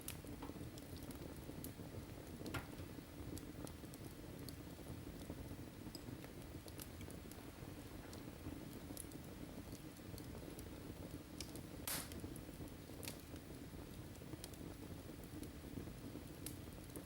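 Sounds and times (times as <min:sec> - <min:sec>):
fire snapping: 0:00.0 - 0:17.0
low rumble of flames: 0:00.0 - 0:17.0
wood fire crackling: 0:00.0 - 0:17.0.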